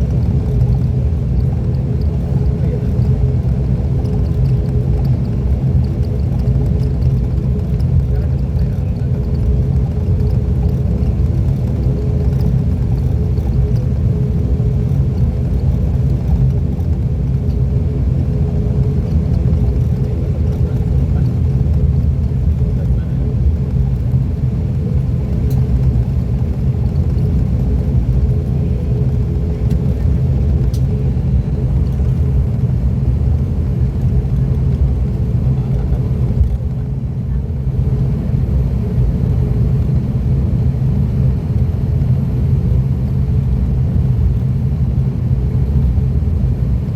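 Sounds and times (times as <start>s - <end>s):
turboprop engine drone in cabin: 0.0s - 46.9s.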